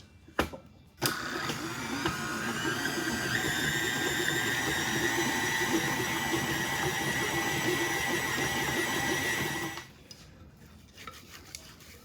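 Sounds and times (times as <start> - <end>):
stand mixer motor whine: 1.0 - 9.9.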